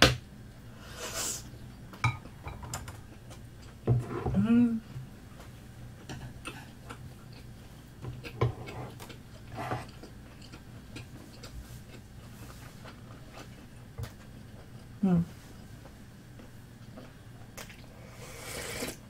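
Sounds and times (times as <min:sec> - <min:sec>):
person chewing: 0:06.4 - 0:15.0.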